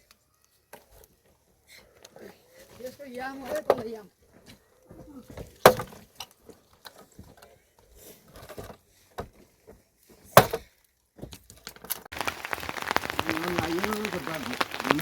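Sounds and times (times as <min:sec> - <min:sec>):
steady hiss of rain: 0:12.1 - 0:15.0.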